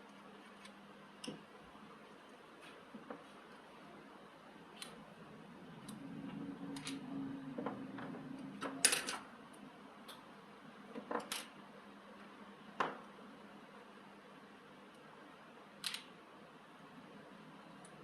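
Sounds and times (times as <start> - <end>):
low hum: 4.6 - 9.9.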